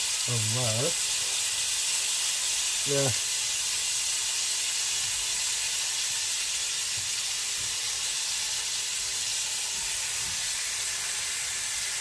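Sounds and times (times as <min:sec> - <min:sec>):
kebabs sizzling: 0:00.0 - 0:12.0.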